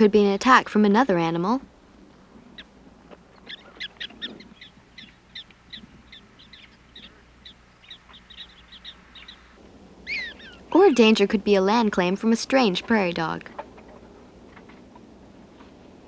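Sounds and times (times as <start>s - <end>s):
prairie dogs chirping: 2.1s - 14.3s.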